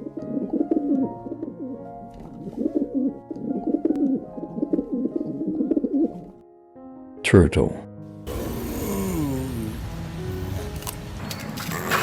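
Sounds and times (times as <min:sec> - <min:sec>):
pigeon cooing: 0:00.0 - 0:06.3, 0:08.3 - 0:10.8, 0:11.4 - 0:12.0
soft background music: 0:00.0 - 0:12.0.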